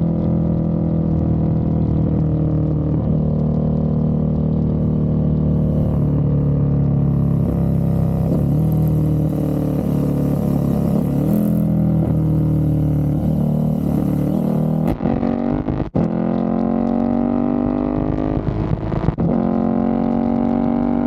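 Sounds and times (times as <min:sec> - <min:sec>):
motorcycle engine revving: 0:01.0 - 0:21.0.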